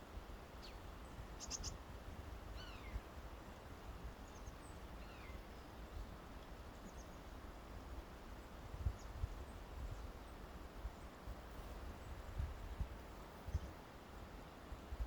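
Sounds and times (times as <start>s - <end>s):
birds calling: 1.4s - 1.8s
wind on microphone: 8.6s - 13.9s.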